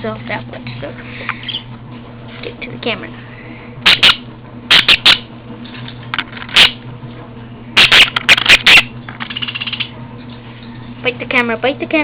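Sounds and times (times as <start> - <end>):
bird rasping chatter: 1.4 - 1.7, 3.9 - 5.3, 6.6 - 6.8, 7.8 - 10.0.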